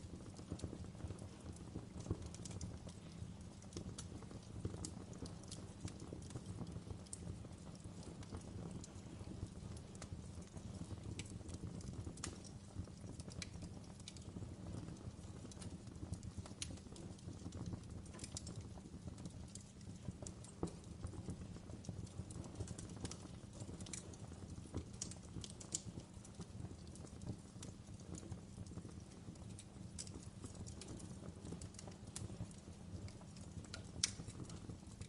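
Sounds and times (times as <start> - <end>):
low rush of burning fire: 0.0 - 35.0
wood fire crackling: 0.0 - 35.0.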